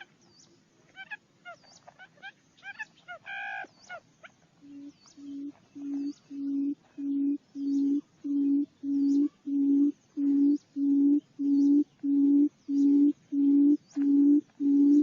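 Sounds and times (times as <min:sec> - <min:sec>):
bird deep booming hoots: 0:04.7 - 0:15.0.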